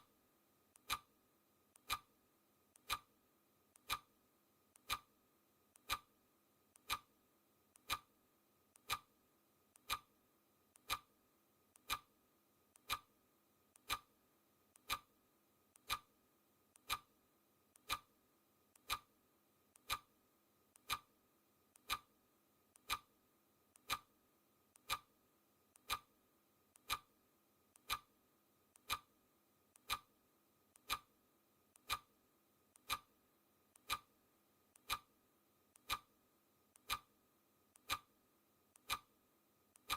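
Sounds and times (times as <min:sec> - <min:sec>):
clock ticking: 0:00.8 - 0:01.2, 0:01.8 - 0:02.2, 0:02.8 - 0:03.2, 0:03.8 - 0:04.2, 0:04.8 - 0:06.1, 0:06.7 - 0:07.2, 0:07.8 - 0:08.2, 0:08.8 - 0:09.2, 0:09.8 - 0:10.2, 0:10.8 - 0:11.1, 0:11.8 - 0:12.2, 0:12.8 - 0:13.2, 0:13.8 - 0:14.2, 0:14.8 - 0:15.2, 0:15.8 - 0:16.2, 0:16.8 - 0:17.2, 0:17.8 - 0:18.2, 0:18.8 - 0:19.2, 0:19.8 - 0:20.2, 0:20.8 - 0:21.2, 0:21.8 - 0:22.2, 0:22.8 - 0:23.2, 0:23.8 - 0:24.2, 0:24.8 - 0:25.2, 0:25.8 - 0:26.2, 0:26.8 - 0:27.2, 0:27.8 - 0:28.2, 0:28.8 - 0:29.2, 0:29.8 - 0:30.2, 0:30.8 - 0:31.2, 0:31.8 - 0:34.2, 0:34.8 - 0:35.2, 0:35.8 - 0:37.2, 0:37.8 - 0:38.2, 0:38.8 - 0:39.2.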